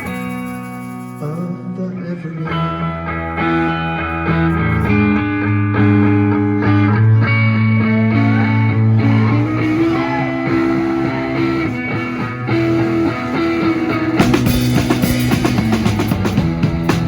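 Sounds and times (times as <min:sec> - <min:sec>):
live rock band playing: 0:00.0 - 0:01.6, 0:02.8 - 0:17.0
drum kit hits: 0:14.2 - 0:17.0.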